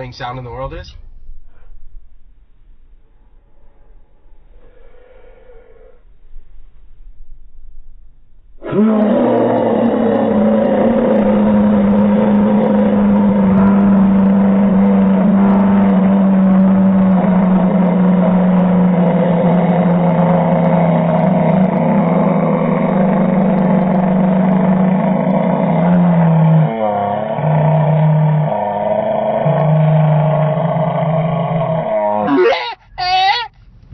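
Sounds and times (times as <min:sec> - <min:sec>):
person making nasal drone: 0:08.6 - 0:33.6.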